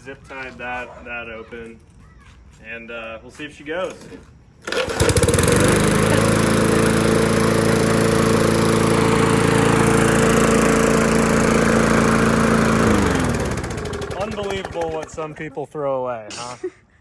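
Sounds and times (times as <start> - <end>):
small gasoline engine running: 4.6 - 15.5.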